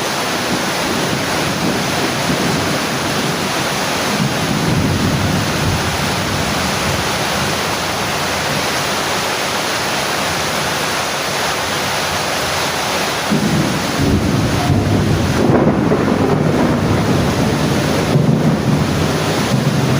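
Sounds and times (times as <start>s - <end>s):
heavy rain hissing: 0.0s - 19.9s
low rumble: 13.3s - 19.9s.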